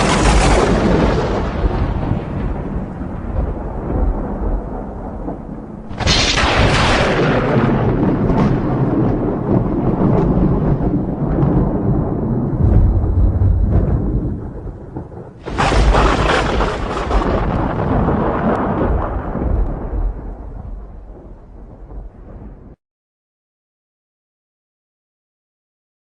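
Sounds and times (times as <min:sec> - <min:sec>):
rain: 0:00.0 - 0:22.8
sharp thunder crack: 0:00.0 - 0:22.8
thunder rumbling: 0:00.0 - 0:22.8.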